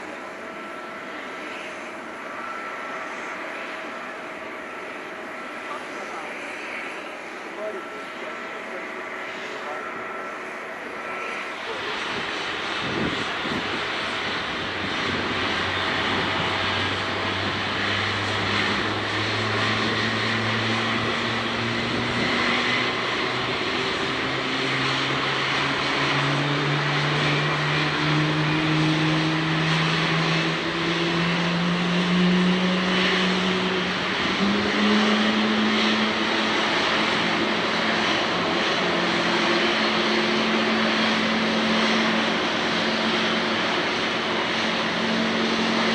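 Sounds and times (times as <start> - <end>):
jet engine spooling up: 0.0 - 45.9.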